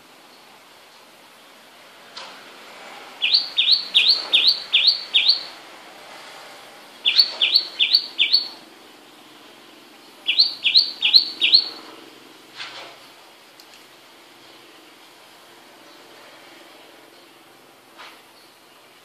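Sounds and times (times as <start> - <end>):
bird chirping: 3.2 - 5.6, 7.0 - 8.6, 10.0 - 12.0.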